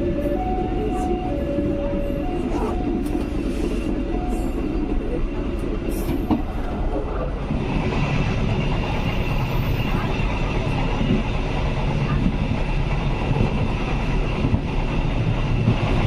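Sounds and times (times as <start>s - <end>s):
train carriages rumbling and rattling: 0.0s - 16.0s.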